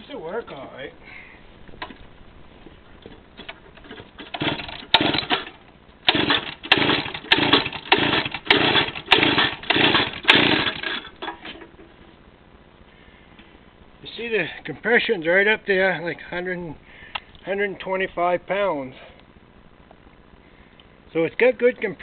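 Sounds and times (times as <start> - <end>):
chainsaw recoil starter pulls: 3.4 - 11.6.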